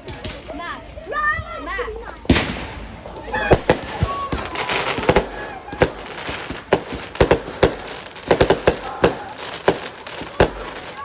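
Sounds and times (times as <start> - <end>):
fireworks bangs: 2.2 - 11.0.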